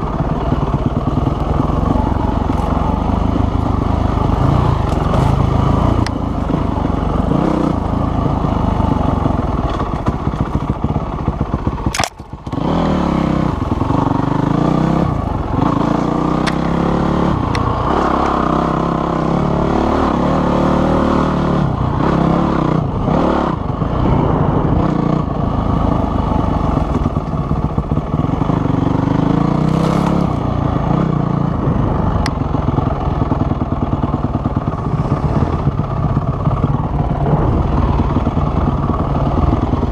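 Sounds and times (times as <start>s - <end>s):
dirt bike engine revving: 0.6s - 9.4s, 11.5s - 32.2s
sharp click: 11.9s - 12.3s, 16.4s - 16.7s.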